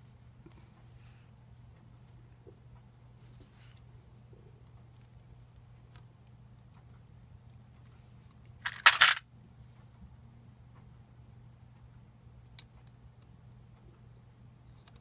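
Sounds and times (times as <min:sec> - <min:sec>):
hard parts clattering: 0:08.7 - 0:09.2.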